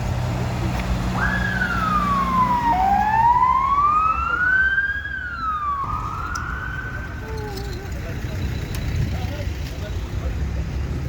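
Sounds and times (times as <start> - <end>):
traffic rumble: 0.0 - 11.0
emergency siren wailing: 1.1 - 7.4.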